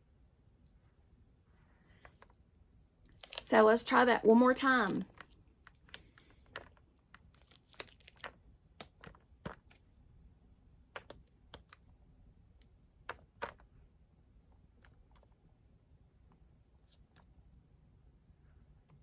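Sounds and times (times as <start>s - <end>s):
faint irregular clicks: 5.0s - 9.9s, 10.9s - 13.8s.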